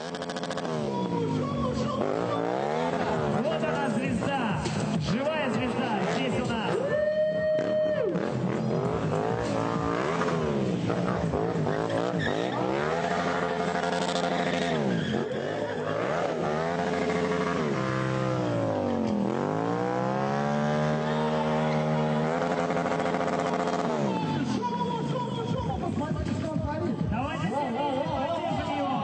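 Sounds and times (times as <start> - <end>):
motorcycle engine revving: 0.0 - 27.1.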